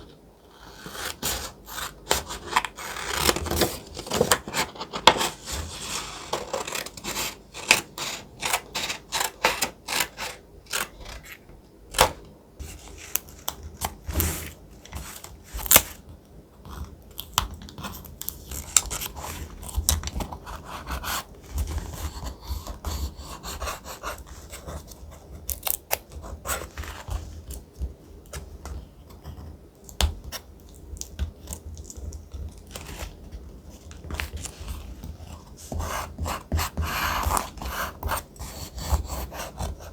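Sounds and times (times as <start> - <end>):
paper crackling and crinkling: 2.0 - 16.0.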